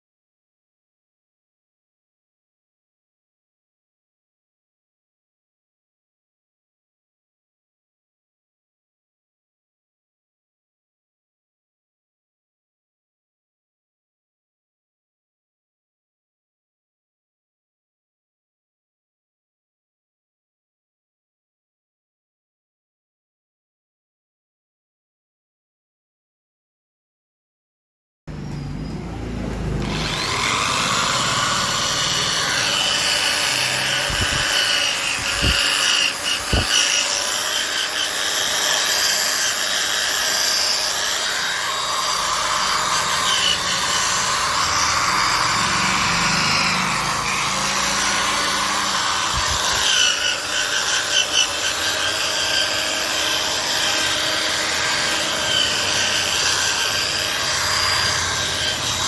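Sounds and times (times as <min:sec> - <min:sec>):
polishing machine whirring: 0:28.4 - 0:59.0.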